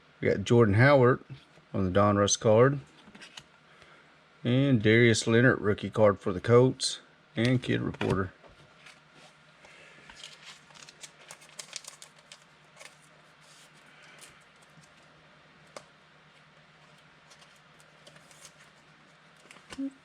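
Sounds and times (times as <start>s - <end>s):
faint low hum: 0.0s - 20.0s
cards and wrapper rustling: 10.0s - 15.9s, 16.8s - 19.9s.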